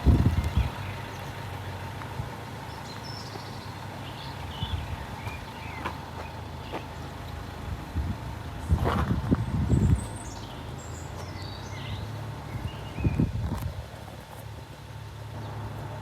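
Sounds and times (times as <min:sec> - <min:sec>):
vehicle engine idling: 0:00.0 - 0:16.0
bird chirps: 0:02.7 - 0:07.1, 0:09.4 - 0:13.3.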